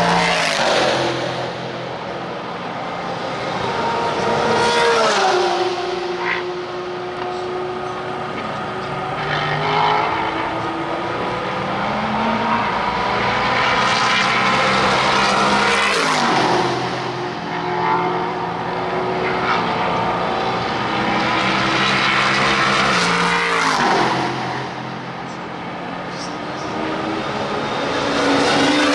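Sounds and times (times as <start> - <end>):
racing car engines accelerating: 0.0 - 28.9.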